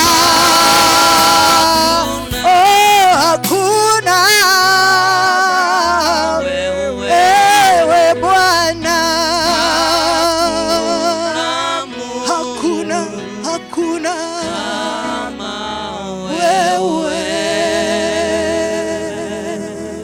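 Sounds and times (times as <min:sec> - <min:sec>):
held bass notes: 0:00.0 - 0:13.5
gospel singing with vibrato: 0:00.0 - 0:20.0.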